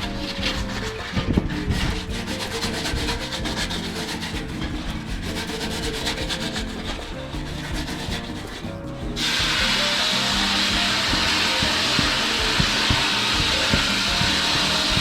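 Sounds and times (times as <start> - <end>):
background music: 0.0 - 15.0
brush scrubbing: 0.0 - 15.0.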